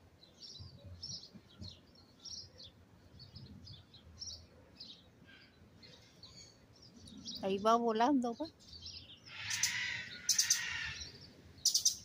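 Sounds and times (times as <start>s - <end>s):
small songbird chirping: 0.0s - 12.0s.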